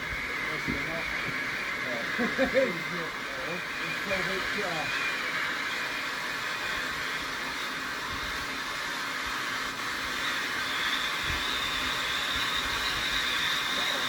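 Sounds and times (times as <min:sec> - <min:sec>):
firework sparks hissing: 0:00.0 - 0:14.0
high whistle-like tone: 0:10.2 - 0:14.0.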